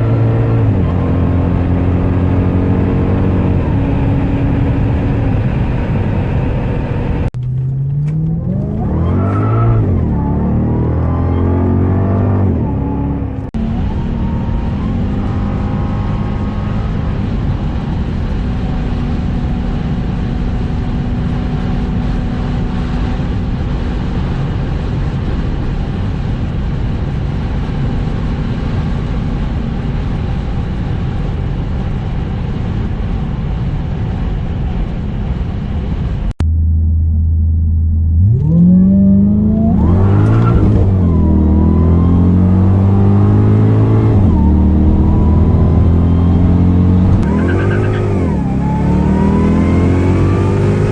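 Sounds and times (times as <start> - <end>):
car engine droning: 0.0 - 50.9
road noise: 0.0 - 50.9.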